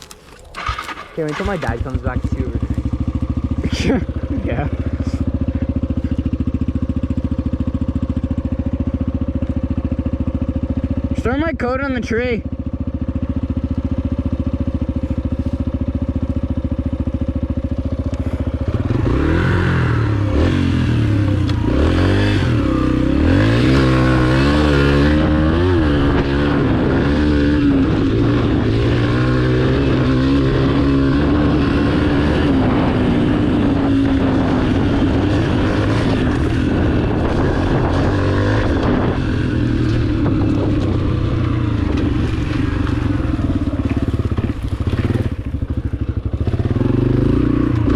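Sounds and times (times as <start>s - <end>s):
dirt bike engine idling and revving: 0.0s - 47.9s.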